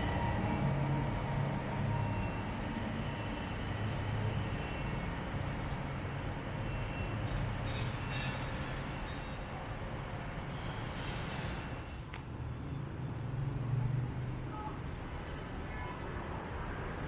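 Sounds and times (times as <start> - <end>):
monorail train whine: 0.0 - 13.4.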